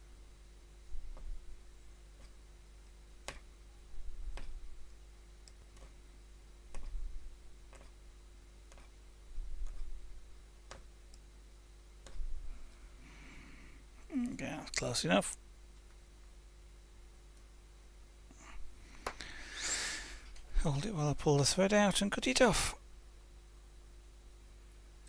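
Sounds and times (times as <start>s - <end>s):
faint steady hum: 0.0s - 25.0s
punch needle clicking through fabric: 3.2s - 3.5s, 5.4s - 6.0s, 6.7s - 7.1s, 7.7s - 8.0s, 8.7s - 8.9s, 10.7s - 10.9s.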